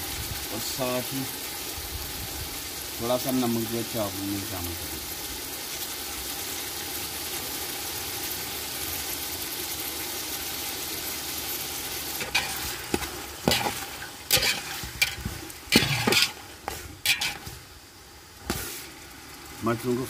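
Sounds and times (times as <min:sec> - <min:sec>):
peas sizzling in hot oil: 0:00.0 - 0:20.0
metal spatula scraping a pot: 0:12.2 - 0:17.6.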